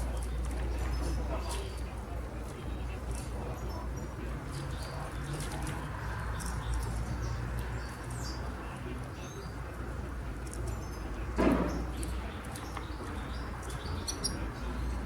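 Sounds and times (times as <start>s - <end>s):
canary chirping: 12.6s - 15.0s.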